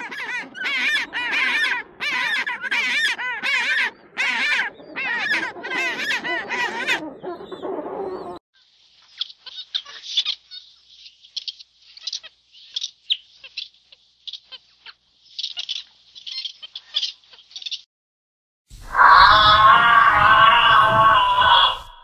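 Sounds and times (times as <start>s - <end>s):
high-pitched squawking calls: 18.8s - 22.0s.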